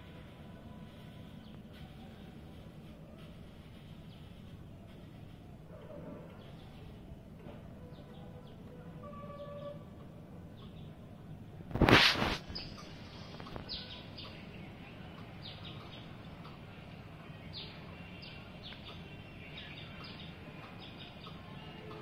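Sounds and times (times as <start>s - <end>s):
small birds chirping: 0.0s - 11.4s, 12.2s - 22.0s
brief rush of noise: 11.7s - 12.6s.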